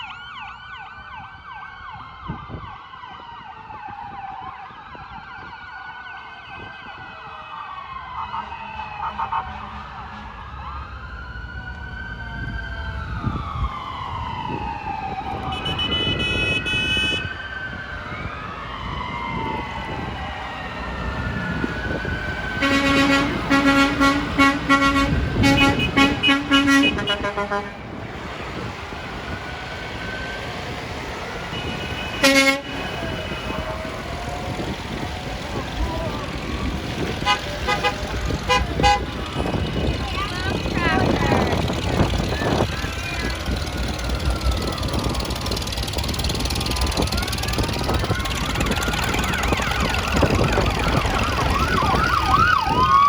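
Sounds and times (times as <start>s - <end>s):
emergency sirens wailing: 0.0s - 53.0s
vehicle horn: 8.3s - 10.6s, 15.5s - 17.3s, 22.6s - 27.9s, 31.5s - 33.6s, 37.2s - 39.2s
deep horn blasts: 8.3s - 18.2s, 19.3s - 28.0s, 31.4s - 34.0s, 37.0s - 39.8s.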